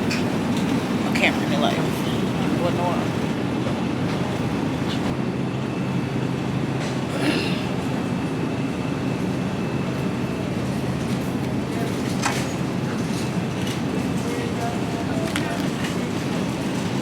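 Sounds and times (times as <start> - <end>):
constant hum: 0.0 - 17.0.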